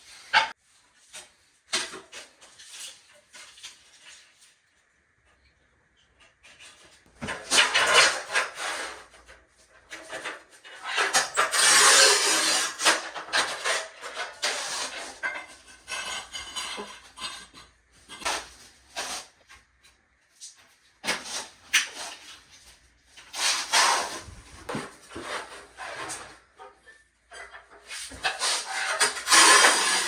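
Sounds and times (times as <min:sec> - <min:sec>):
tile scraping and clacking: 0:06.2 - 0:30.0.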